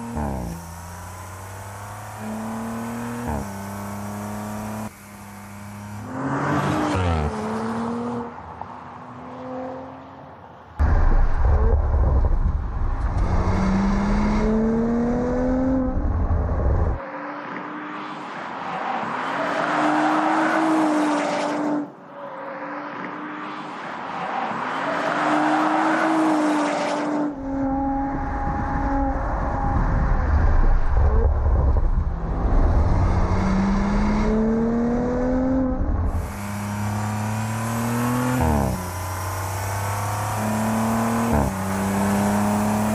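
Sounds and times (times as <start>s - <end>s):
car engine accelerating: 0.0s - 42.9s.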